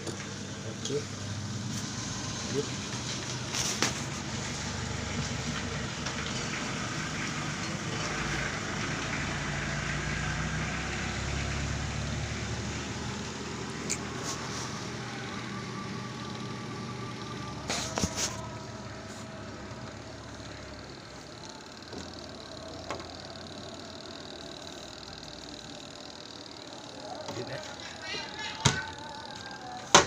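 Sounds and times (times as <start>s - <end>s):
spin-dryer motor whirring: 0.0s - 30.0s.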